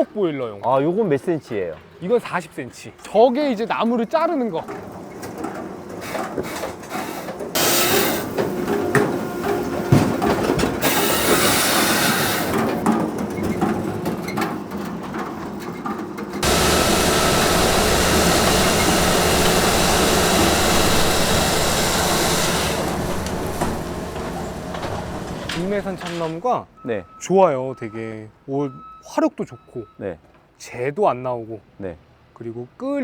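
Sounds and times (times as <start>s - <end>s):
log splitting machinery: 10.8s - 12.5s, 16.4s - 26.4s.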